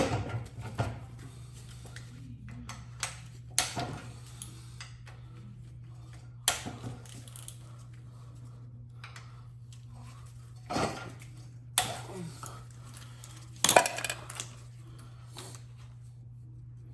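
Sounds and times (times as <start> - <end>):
steady low hum: 0.0 - 16.9
metal tools clinking and knocking: 13.6 - 14.5.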